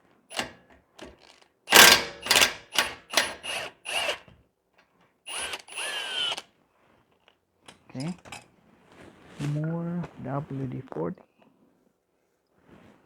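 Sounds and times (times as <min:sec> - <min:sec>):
power tool bursts on a nut: 0:00.3 - 0:01.1, 0:01.7 - 0:04.4, 0:05.3 - 0:06.5.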